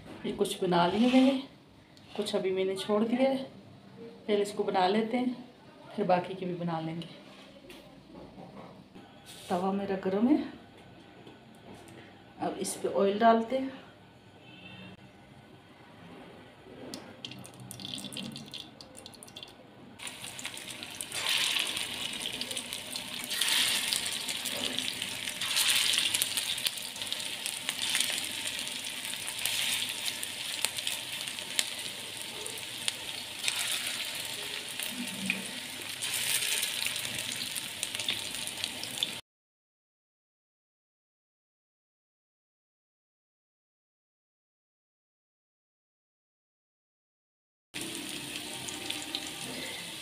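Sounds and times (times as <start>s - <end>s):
kababs sizzling in hot oil: 20.0s - 39.2s, 47.8s - 50.0s.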